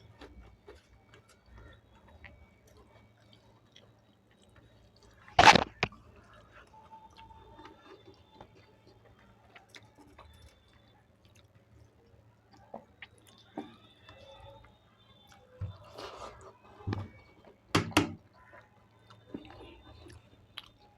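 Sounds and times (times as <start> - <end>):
person chewing food: 0.2 - 6.0, 9.1 - 13.6, 18.4 - 20.9.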